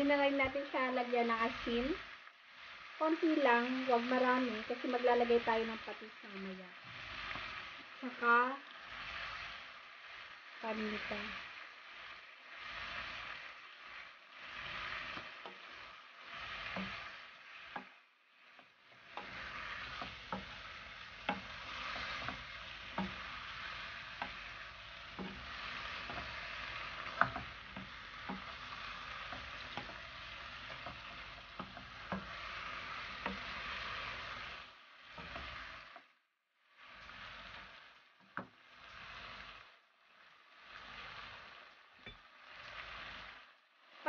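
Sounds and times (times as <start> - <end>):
meat sizzling in a frying pan: 0.0 - 44.0.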